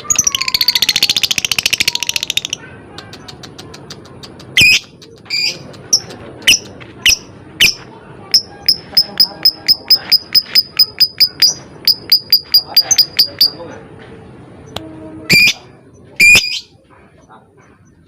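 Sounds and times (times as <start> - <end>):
bird chattering trill: 0.0 - 13.7, 15.3 - 16.8
bird sharp chirps: 4.4 - 13.6, 14.7 - 16.7.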